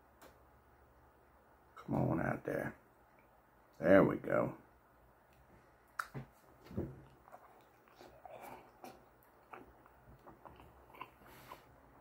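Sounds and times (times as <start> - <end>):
wet mouth clicks and smacks: 5.3 - 6.2
person chewing: 7.0 - 12.0.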